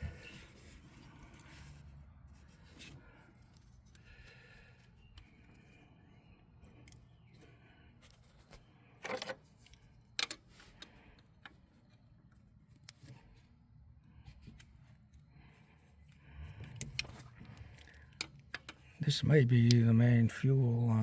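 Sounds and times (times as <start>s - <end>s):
clicks and clatter of hand work: 6.7s - 13.2s, 16.5s - 19.0s.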